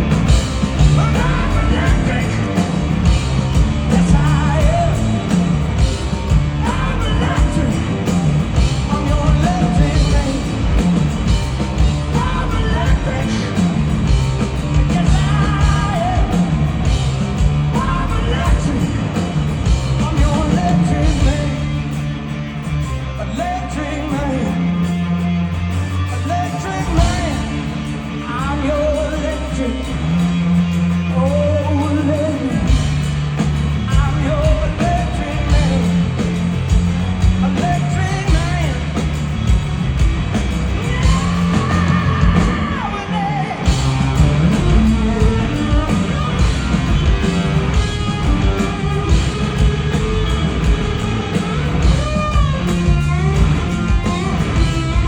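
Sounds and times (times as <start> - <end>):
drums: 0.0 - 55.0
heavy bass: 0.0 - 55.0
rock band playing loud: 0.0 - 55.0
bending lead melody: 43.6 - 55.0.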